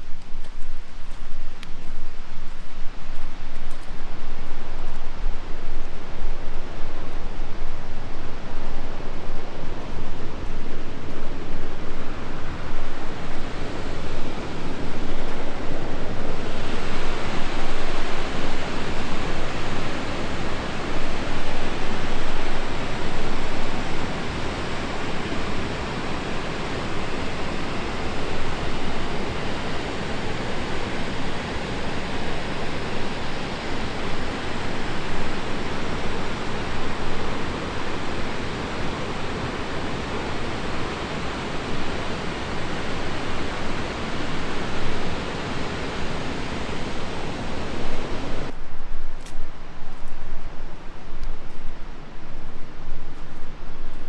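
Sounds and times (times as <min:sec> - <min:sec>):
fast-flowing river water rushing: 0:10.0 - 0:48.5.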